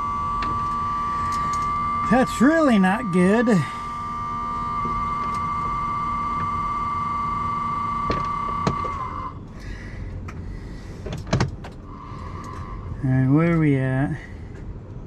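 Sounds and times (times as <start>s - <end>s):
warning buzzer tone: 0.0s - 9.4s.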